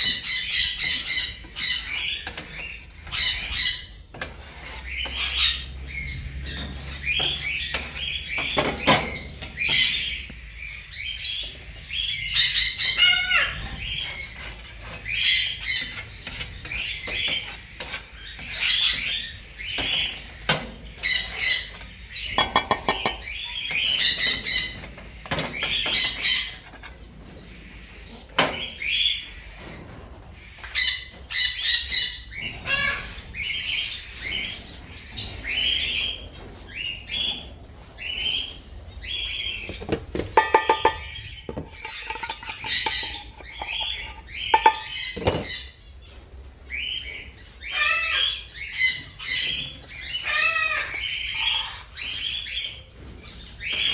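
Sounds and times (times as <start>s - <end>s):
parrots chirping and squawking: 0.0s - 53.9s.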